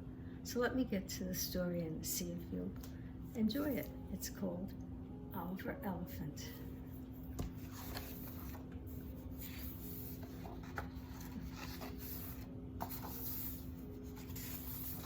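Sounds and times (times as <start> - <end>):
steady low hum: 0.0 - 15.0
book pages rustling and turning: 7.3 - 15.0.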